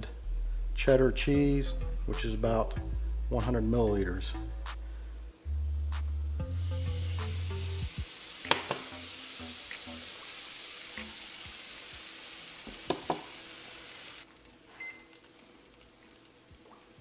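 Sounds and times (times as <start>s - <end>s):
cheese sizzling in a frying pan: 6.5s - 17.0s.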